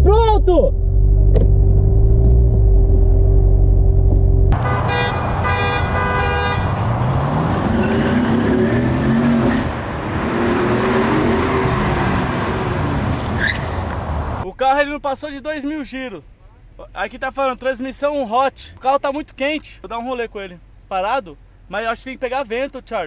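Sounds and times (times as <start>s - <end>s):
car engine rumbling: 0.0s - 22.6s
horn-like toot: 4.6s - 6.8s.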